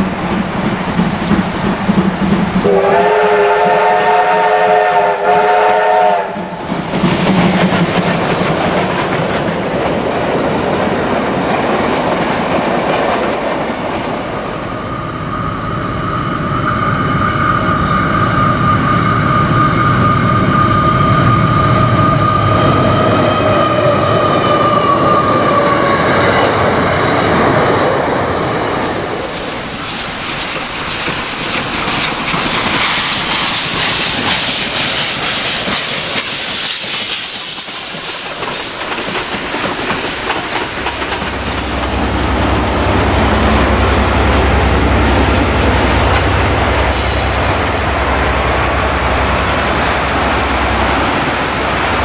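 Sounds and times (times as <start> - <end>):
steam locomotive passing: 0.0 - 52.0
train wheels squealing: 6.4 - 9.6, 14.4 - 27.7, 29.8 - 42.0, 46.8 - 47.8
steam hissing: 28.8 - 44.2.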